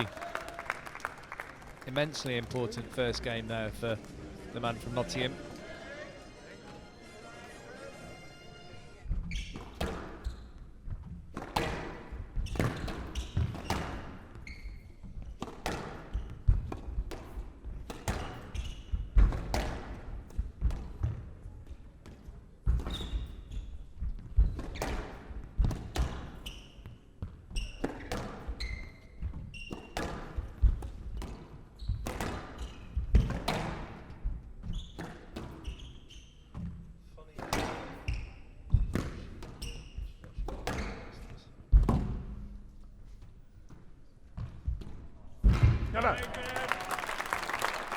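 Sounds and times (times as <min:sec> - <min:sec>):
shoes squeaking on court floor: 0:08.8 - 0:19.6, 0:22.1 - 0:41.6.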